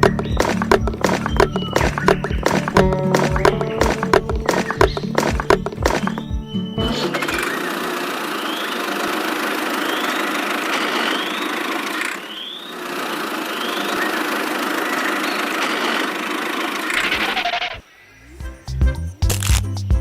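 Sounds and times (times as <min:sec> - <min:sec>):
small motor machine running: 0:07.0 - 0:17.8.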